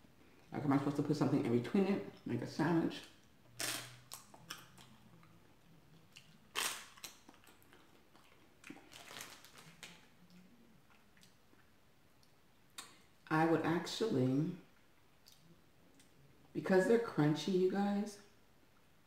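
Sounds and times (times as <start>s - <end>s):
wafer candy crunching: 3.1s - 11.7s.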